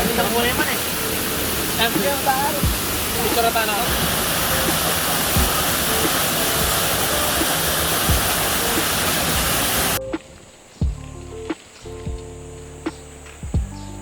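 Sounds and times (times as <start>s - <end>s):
waterfall roaring: 0.0s - 10.7s.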